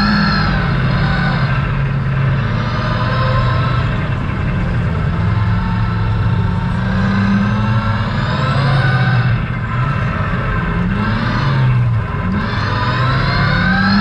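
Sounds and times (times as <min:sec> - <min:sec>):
truck engine accelerating: 0:00.0 - 0:14.0.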